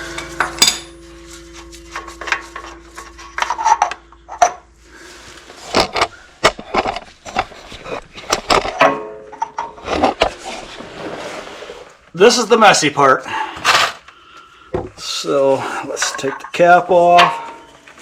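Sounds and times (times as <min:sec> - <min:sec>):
hand tools clicking and scraping metal: 0:00.0 - 0:04.7, 0:05.4 - 0:10.6, 0:15.4 - 0:18.0.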